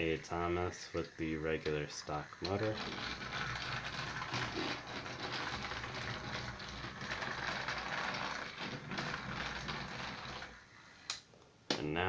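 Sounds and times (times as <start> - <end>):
toy train motor whirring: 2.1 - 11.2.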